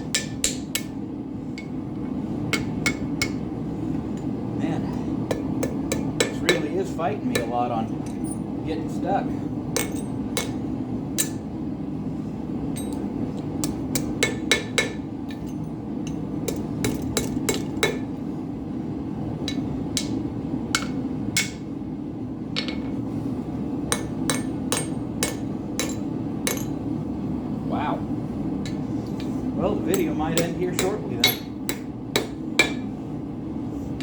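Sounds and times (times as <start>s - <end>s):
hammer striking steel on anvil: 0.0s - 1.0s, 2.5s - 3.5s, 5.3s - 8.4s, 9.8s - 10.6s, 11.2s - 11.4s, 13.6s - 18.2s, 19.4s - 21.7s, 23.9s - 26.8s, 29.9s - 32.9s.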